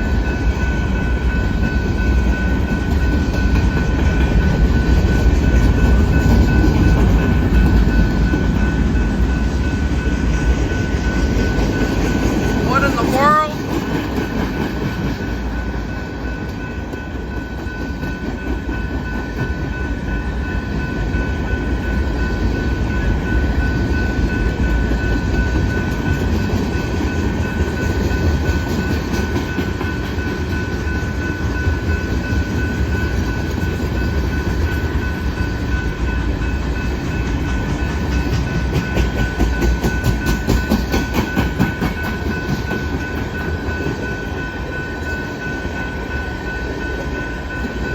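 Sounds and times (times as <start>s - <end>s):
freight train rumbling past: 0.0s - 47.9s
wheels clicking over rail joints: 37.0s - 44.2s.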